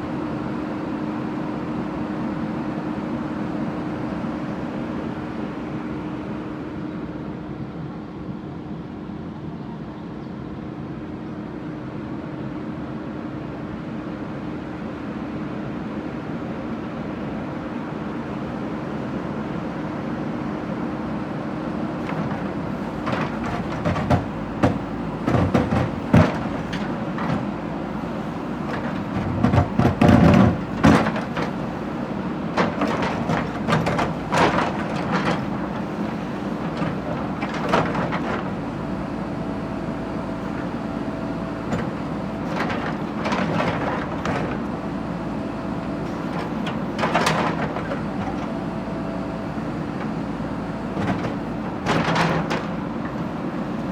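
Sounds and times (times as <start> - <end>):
heavy machine engine running: 18.0 - 53.9
metal clanks and knocks: 22.0 - 38.6, 41.6 - 44.7, 46.1 - 48.6, 50.9 - 53.3.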